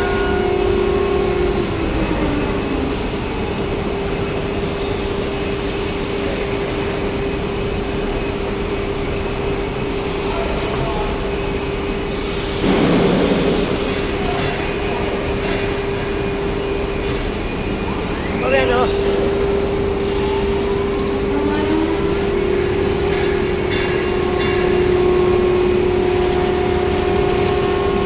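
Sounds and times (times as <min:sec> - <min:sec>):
machine noise: 0:00.0 - 0:28.0
loud air hiss: 0:12.1 - 0:14.6.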